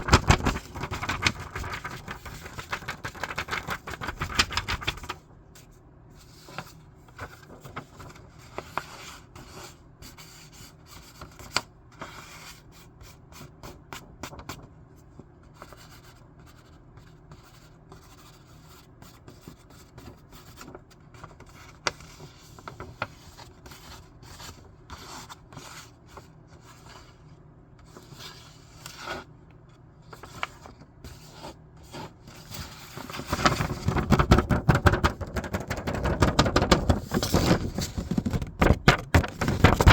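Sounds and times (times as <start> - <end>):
paper rustling: 0.0 - 5.2, 6.4 - 9.0, 30.1 - 39.9.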